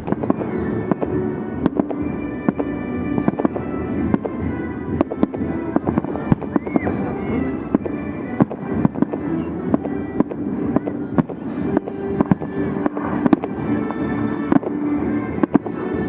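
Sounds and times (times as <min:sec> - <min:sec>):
fireworks bangs: 0:00.0 - 0:15.8
music playing: 0:00.0 - 0:16.0.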